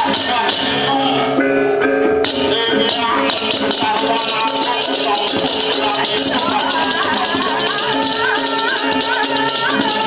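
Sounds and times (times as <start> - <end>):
held ringing tones: 0.3 - 10.0
bright high clatter: 2.2 - 10.0.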